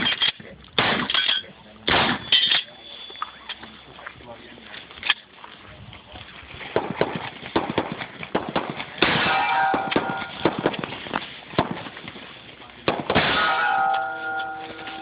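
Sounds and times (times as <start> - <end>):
shotgun blasts: 0.8 - 1.2, 1.9 - 2.3, 6.8 - 11.9, 12.9 - 13.9
steel targets ringing: 1.2 - 3.9, 9.0 - 10.5, 13.2 - 15.0.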